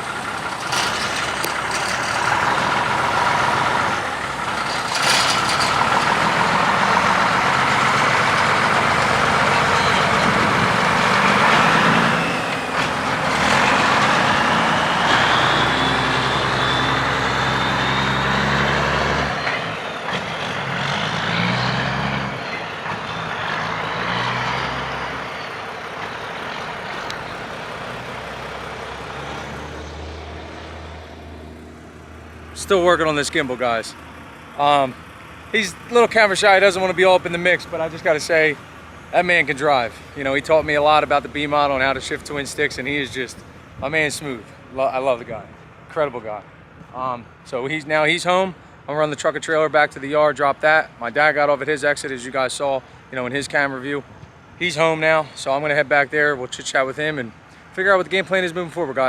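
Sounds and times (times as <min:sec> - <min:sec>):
heavy diesel truck engine revving: 0:00.0 - 0:44.5.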